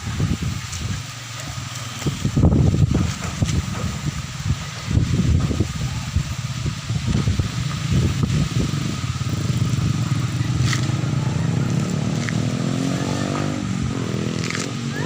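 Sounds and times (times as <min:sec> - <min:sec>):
strong wind buffeting microphone: 0:00.0 - 0:01.2, 0:02.0 - 0:15.0
engine rising in pitch: 0:07.8 - 0:15.0.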